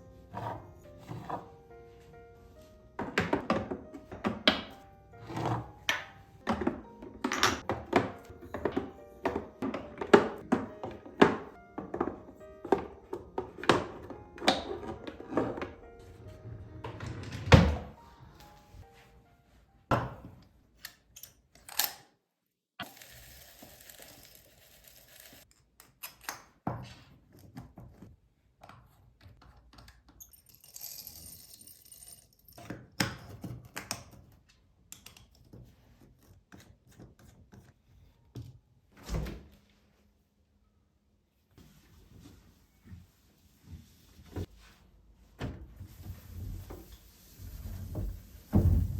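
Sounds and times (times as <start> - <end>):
objects knocking and thunking: 2.9 - 16.1, 47.6 - 48.9.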